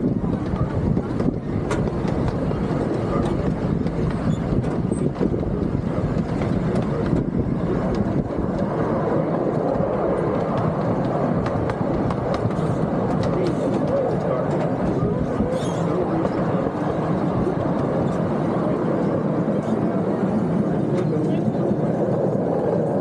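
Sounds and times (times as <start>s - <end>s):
miniature train rattling on track: 0.0s - 8.7s, 9.5s - 18.3s.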